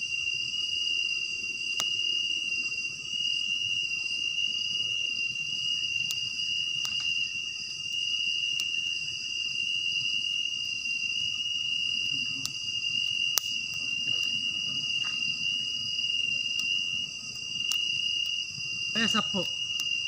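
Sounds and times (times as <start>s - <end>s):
crickets trilling: 0.0s - 20.0s
sharp clicks: 13.3s - 13.6s.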